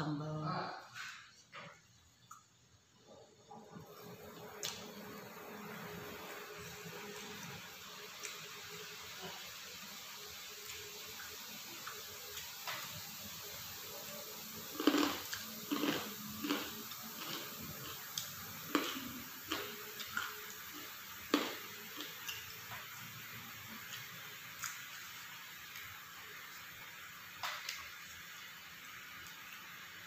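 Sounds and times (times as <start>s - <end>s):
wet chewing and lip-smacking: 14.8s - 22.9s.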